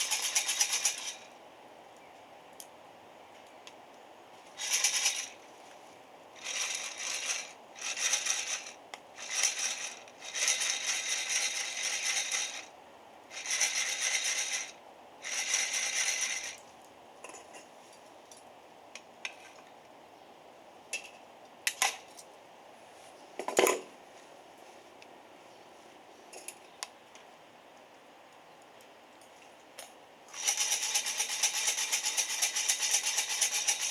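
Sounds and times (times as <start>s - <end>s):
coffee beans rattling in metal: 0.0s - 1.2s, 4.6s - 5.4s, 6.4s - 12.6s, 30.4s - 33.9s.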